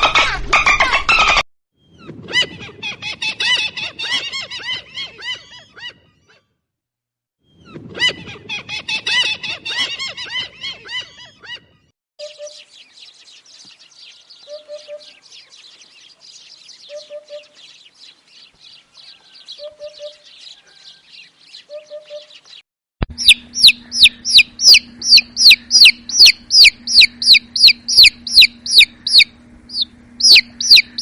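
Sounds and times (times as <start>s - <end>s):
rapid chicken calls: 8.0s - 11.6s, 23.1s - 31.0s
low hum: 23.0s - 31.0s
chicks peeping: 23.1s - 31.0s
hen clucking softly: 23.2s - 31.0s.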